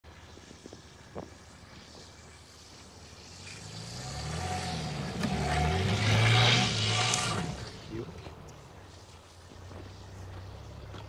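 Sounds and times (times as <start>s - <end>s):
tyres spinning through snow: 0.0s - 11.0s
car engine revving: 1.6s - 8.4s.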